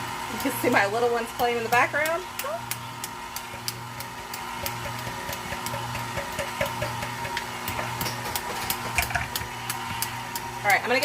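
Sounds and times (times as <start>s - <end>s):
stand mixer motor hum: 0.0s - 11.0s
regular clicking: 2.3s - 5.7s.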